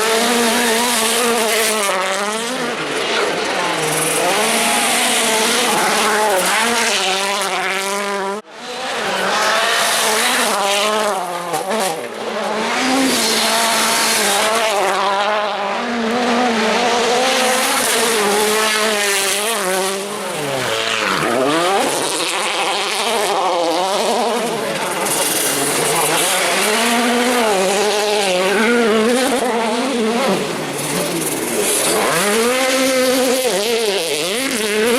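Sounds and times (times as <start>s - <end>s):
rally car engines revving: 0.0s - 34.9s.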